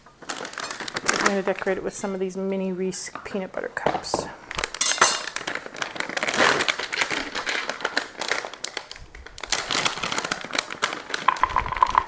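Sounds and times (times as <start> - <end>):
candy wrapper crinkling: 0.2 - 1.8, 4.6 - 12.0.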